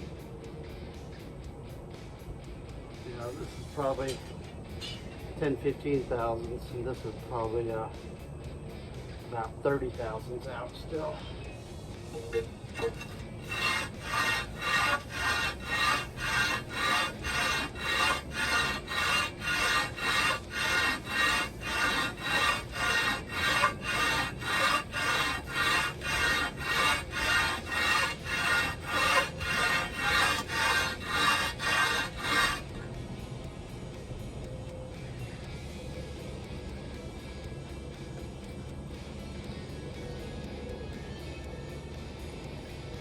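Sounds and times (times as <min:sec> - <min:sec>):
metal scraping on abrasive surface: 0:12.1 - 0:32.9.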